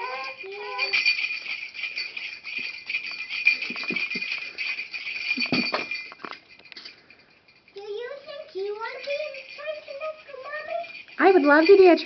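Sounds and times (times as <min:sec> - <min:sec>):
small bells jingling: 0:00.0 - 0:12.0.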